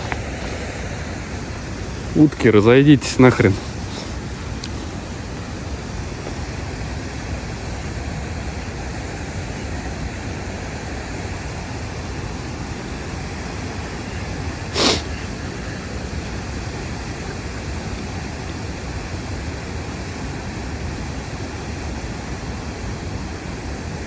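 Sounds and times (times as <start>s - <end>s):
outdoor rushing noise: 0.0s - 16.9s.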